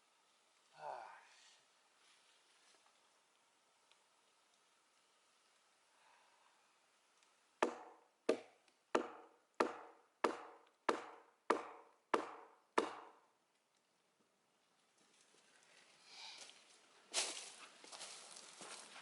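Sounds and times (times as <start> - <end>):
hammer striking steel wedge: 7.6 - 13.2.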